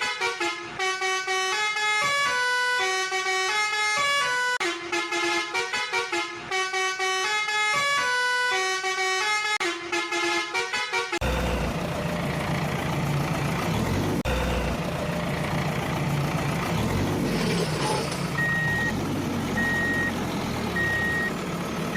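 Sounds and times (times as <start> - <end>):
heavy truck engine running: 11.2 - 21.9
truck reversing alarm beeping: 17.3 - 21.9.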